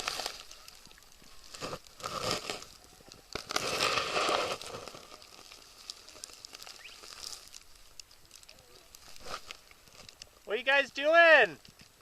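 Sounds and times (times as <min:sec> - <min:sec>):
snow crunching: 0:00.0 - 0:07.9.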